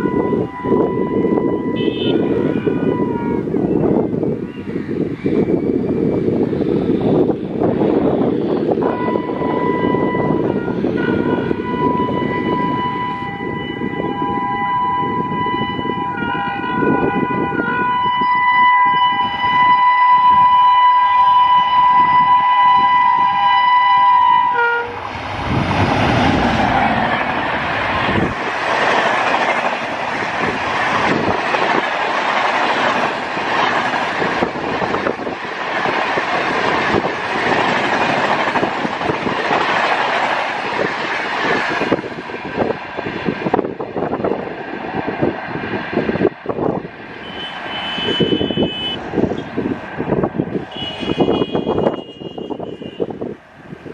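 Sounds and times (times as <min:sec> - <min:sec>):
train horn long blast: 0:00.0 - 0:03.6, 0:08.8 - 0:25.2, 0:47.1 - 0:49.5, 0:50.6 - 0:53.3
train rushing past: 0:00.0 - 0:53.9.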